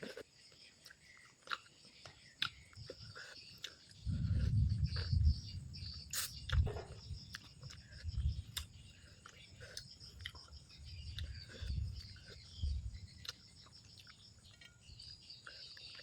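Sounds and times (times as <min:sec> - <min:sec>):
insects chirring: 0:00.0 - 0:16.0
person chewing: 0:00.0 - 0:16.0
mouth smacks and clicks: 0:02.4 - 0:05.5, 0:06.1 - 0:14.2.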